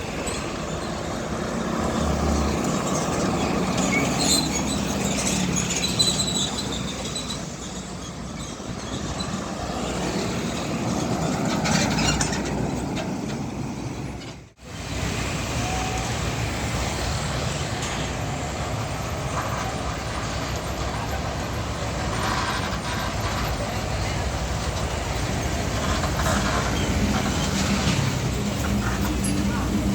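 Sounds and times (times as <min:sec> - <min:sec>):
heavy trucks passing: 0:00.0 - 0:29.9.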